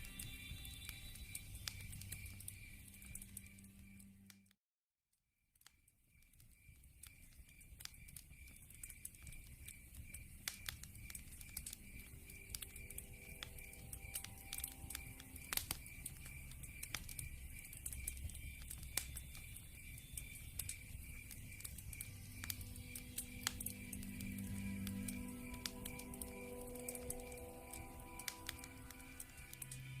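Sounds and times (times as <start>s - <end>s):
wood fire crackling and popping: 0.0s - 4.3s, 5.6s - 30.0s
crickets chirping: 6.2s - 30.0s.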